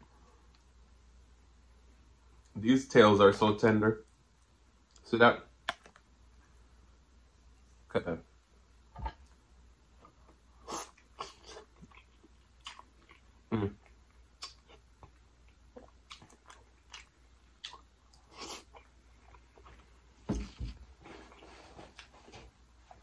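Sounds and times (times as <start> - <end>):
person chewing and biting: 10.7 - 19.7.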